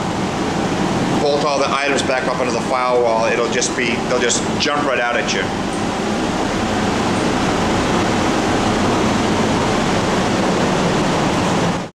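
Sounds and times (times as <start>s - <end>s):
ventilation fans rushing air: 0.0s - 11.9s.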